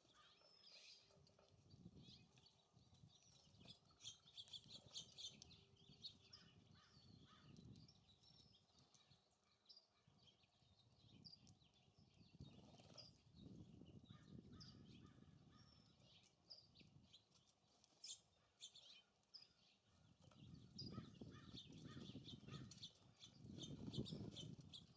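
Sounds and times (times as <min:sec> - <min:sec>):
songbirds chirping: 0:00.0 - 0:24.9
wind on microphone: 0:11.0 - 0:15.6, 0:20.2 - 0:24.9.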